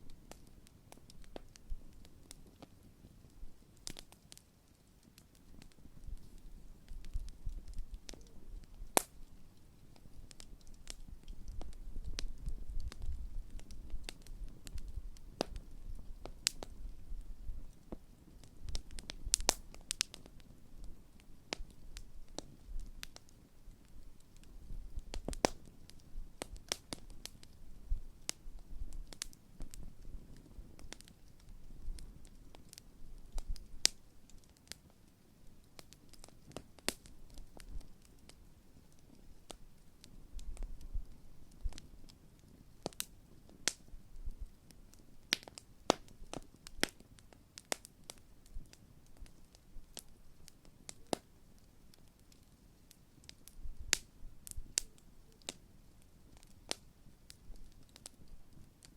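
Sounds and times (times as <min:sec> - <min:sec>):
campfire crackling and popping: 0:00.0 - 0:58.9
low rumble of burning fire: 0:00.0 - 0:58.9.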